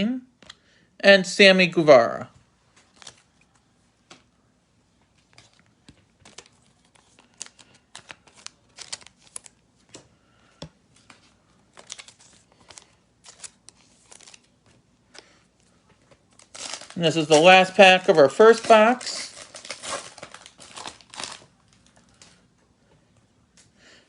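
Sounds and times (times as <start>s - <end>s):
wrapper crinkling: 2.8s - 3.6s, 5.2s - 9.9s, 11.0s - 15.3s, 16.1s - 22.4s.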